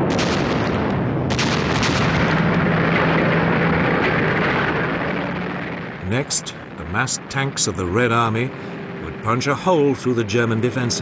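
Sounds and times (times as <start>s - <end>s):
heavy guns firing: 0.0s - 5.7s
sharp cracks: 0.0s - 6.8s.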